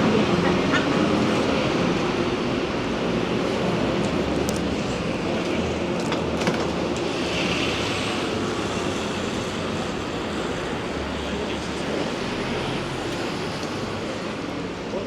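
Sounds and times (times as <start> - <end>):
rain on street: 1.6 - 15.0
tyre noise on wet road: 3.0 - 15.0.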